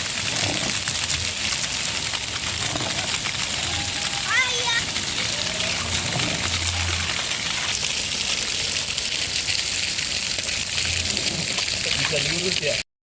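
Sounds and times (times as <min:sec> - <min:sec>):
water gushing: 0:00.0 - 0:12.9.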